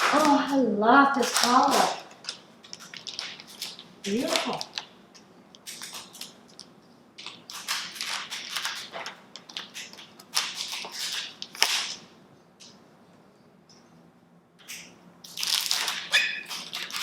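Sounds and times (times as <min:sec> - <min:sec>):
plastic packaging rustling: 0:00.0 - 0:05.0, 0:05.6 - 0:12.1, 0:15.3 - 0:17.0.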